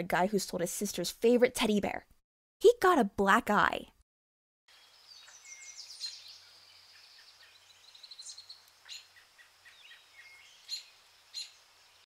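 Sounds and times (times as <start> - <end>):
faint outdoor hiss: 4.7 - 12.0
songbirds chirping and trilling: 4.7 - 12.0.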